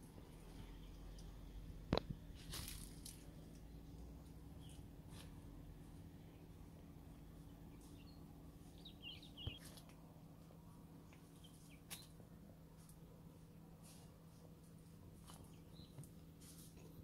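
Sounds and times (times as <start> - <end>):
low steady hum: 0.0 - 17.0
small birds twittering: 3.4 - 4.9, 6.2 - 9.9, 11.0 - 12.2, 15.2 - 16.1.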